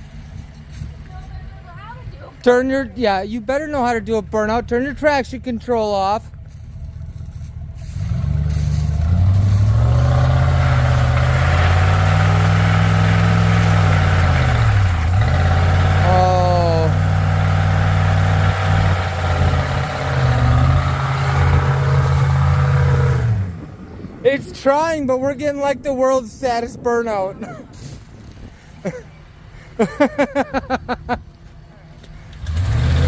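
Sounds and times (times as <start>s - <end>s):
pickup truck engine revving hard: 7.9s - 23.6s, 32.4s - 33.0s.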